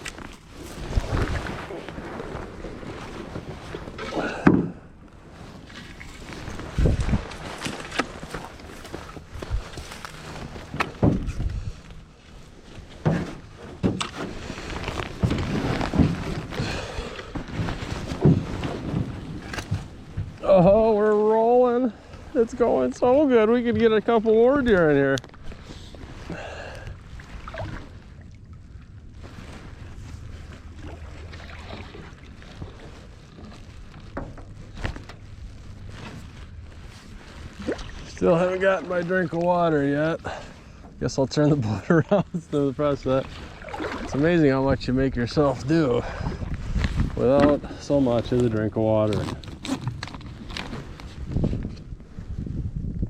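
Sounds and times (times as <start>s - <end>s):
wind rumble on microphone: 0.0s - 21.0s, 21.9s - 53.0s
paddle knocking and splashing: 0.0s - 21.4s, 23.0s - 28.3s, 29.2s - 41.0s, 43.0s - 44.7s.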